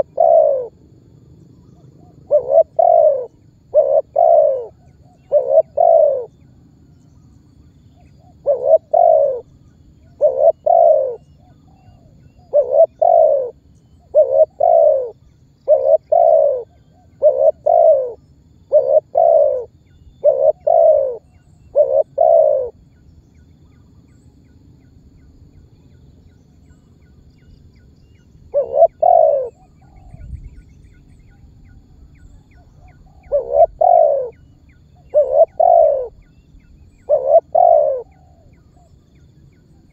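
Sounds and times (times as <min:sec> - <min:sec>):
dove cooing: 0:00.0 - 0:00.8, 0:01.6 - 0:06.5, 0:08.0 - 0:22.8, 0:28.5 - 0:30.4, 0:32.4 - 0:38.9
faint low hum: 0:00.0 - 0:39.9.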